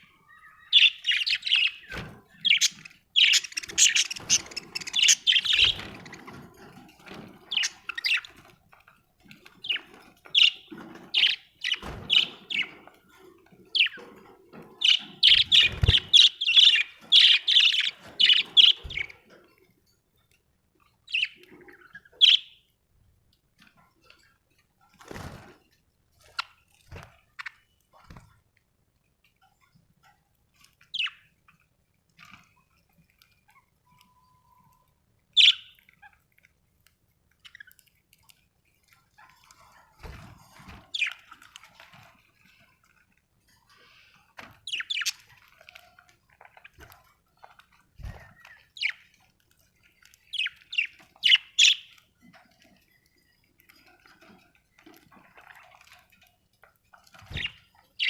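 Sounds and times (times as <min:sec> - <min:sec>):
budgerigars chirping: 0:00.2 - 0:06.3, 0:07.4 - 0:08.4, 0:09.6 - 0:12.8, 0:14.8 - 0:19.2, 0:21.1 - 0:22.6, 0:31.0 - 0:31.2, 0:35.4 - 0:36.2, 0:44.7 - 0:45.3, 0:50.3 - 0:52.0.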